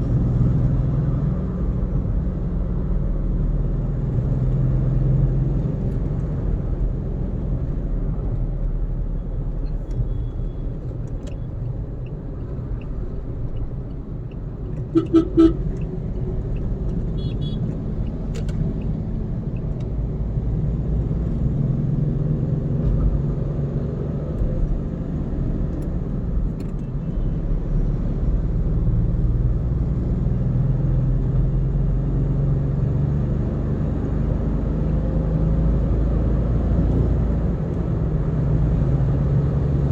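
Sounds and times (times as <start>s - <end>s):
car driving on highway: 0.0s - 39.9s
car horn toots: 14.9s - 15.7s, 17.2s - 17.8s.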